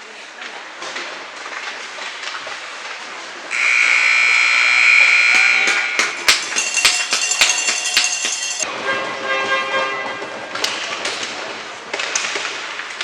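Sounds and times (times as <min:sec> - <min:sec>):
arena buzzer: 0:03.5 - 0:07.5
rink noise: 0:03.5 - 0:08.7
knocks and clatter: 0:05.6 - 0:08.7.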